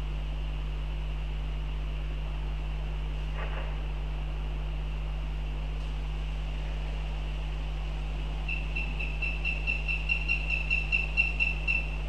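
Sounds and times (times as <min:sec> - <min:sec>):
low electrical hum: 0:00.0 - 0:12.0
bird calling high notes: 0:08.5 - 0:12.0.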